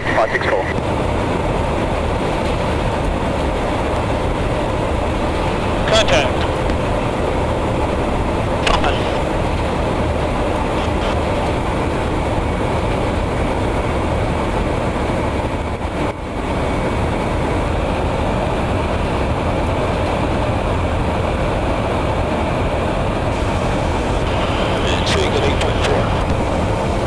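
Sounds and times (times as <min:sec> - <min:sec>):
faint steady tones: 0:00.0 - 0:12.4, 0:23.2 - 0:27.0
aircraft engines and rushing air: 0:00.0 - 0:27.0.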